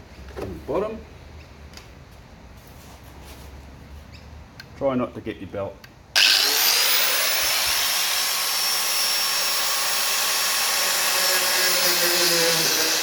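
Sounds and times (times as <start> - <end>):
electric grinder grinding metal: 6.2 - 13.0.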